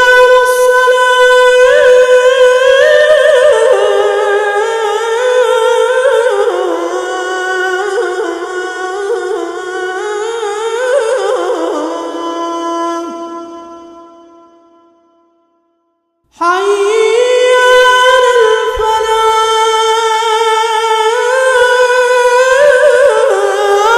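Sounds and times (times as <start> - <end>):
man singing call to prayer: 16.4 - 23.9.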